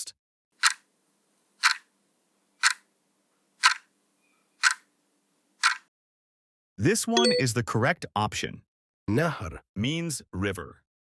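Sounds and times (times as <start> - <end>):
countdown timer ticking: 7.2 - 7.5.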